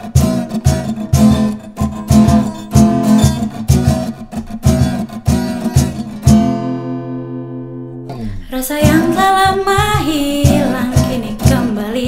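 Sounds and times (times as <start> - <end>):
acoustic guitar strumming: 0.0 - 12.0
person singing: 8.1 - 12.0.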